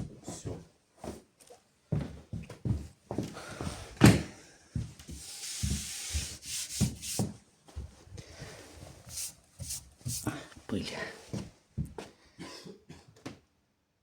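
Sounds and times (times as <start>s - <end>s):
rubbing across tabletop: 5.1s - 7.4s, 8.8s - 10.3s.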